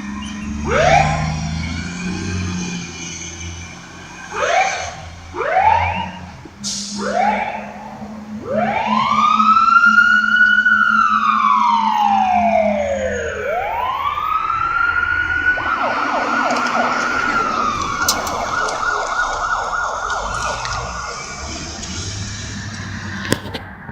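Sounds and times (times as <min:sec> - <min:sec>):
fire engine siren wailing: 0:00.0 - 0:23.7.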